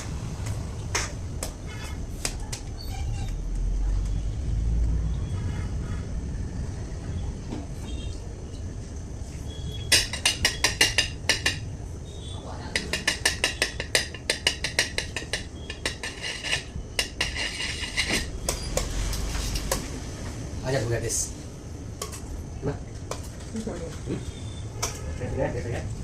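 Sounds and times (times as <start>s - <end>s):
utensil clinking against bowl: 12.7s - 18.6s.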